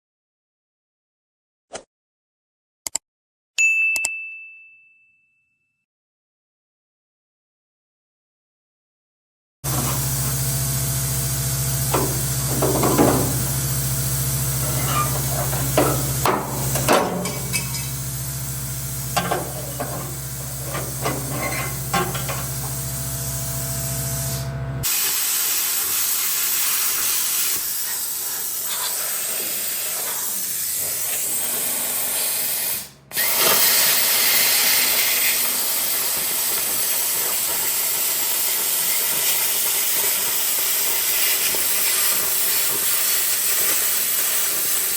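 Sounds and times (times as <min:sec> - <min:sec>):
low hum: 0:09.7 - 0:24.8
steady hissing from metalwork: 0:14.5 - 0:23.0, 0:24.9 - 0:32.1, 0:34.4 - 0:44.9.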